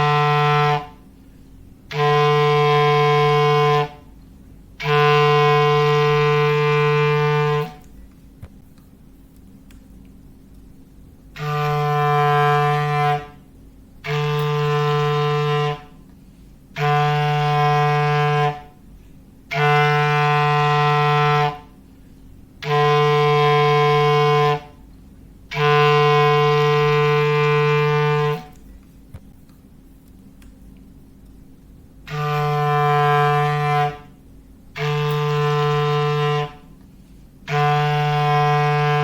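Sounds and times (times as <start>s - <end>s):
low foghorn blasts: 0.0s - 1.1s, 1.9s - 4.2s, 4.8s - 7.9s, 11.3s - 16.1s, 16.7s - 18.9s, 19.5s - 21.8s, 22.6s - 24.9s, 25.5s - 28.6s, 32.0s - 39.0s.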